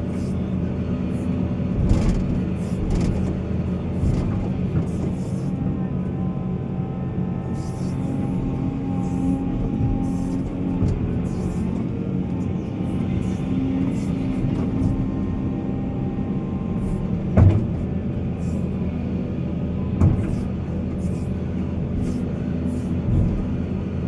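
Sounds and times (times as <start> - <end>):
diesel engine running under load: 0.0 - 24.0
sharp knocks: 17.3 - 17.9.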